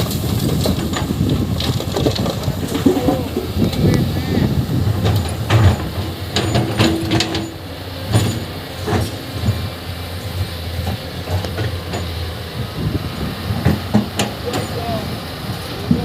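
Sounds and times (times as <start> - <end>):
earth and rock clattering: 0.0 - 9.9
excavator diesel engine running: 0.0 - 16.0.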